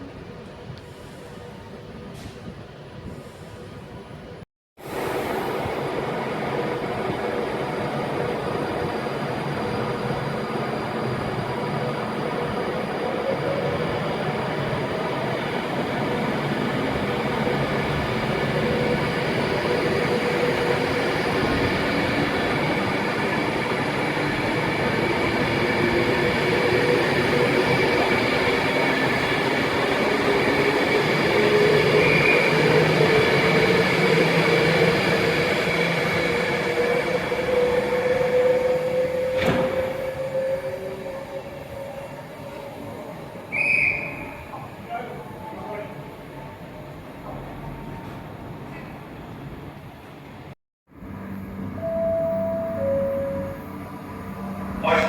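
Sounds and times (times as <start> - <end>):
train rumbling: 0.0 - 55.0
train whining tones: 4.8 - 44.7, 50.9 - 55.0.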